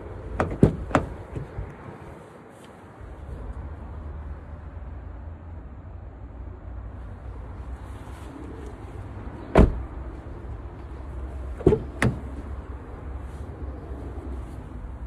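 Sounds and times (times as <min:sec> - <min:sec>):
steady low rumble: 0:00.0 - 0:15.0
car doors shutting: 0:00.3 - 0:01.6, 0:09.5 - 0:09.9, 0:11.5 - 0:12.5.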